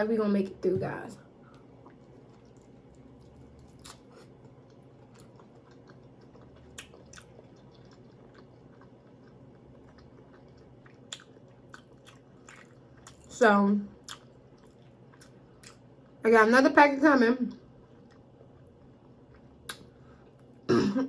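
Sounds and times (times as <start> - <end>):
low room hum: 0.0 - 21.0
person chewing: 1.5 - 13.3, 14.0 - 15.8, 17.7 - 20.7.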